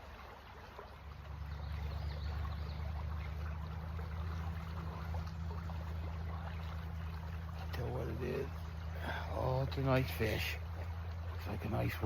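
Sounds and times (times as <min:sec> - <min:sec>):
creek water running: 0:00.0 - 0:12.0.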